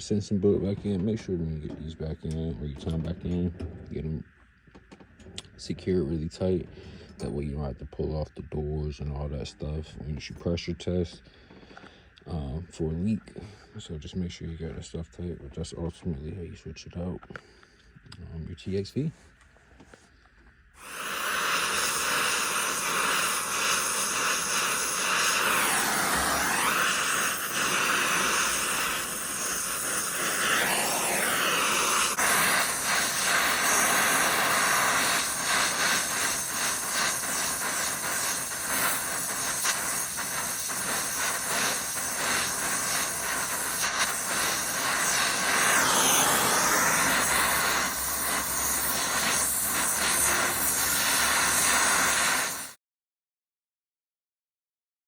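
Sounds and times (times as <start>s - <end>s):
torch flame hissing: 20.8s - 52.8s.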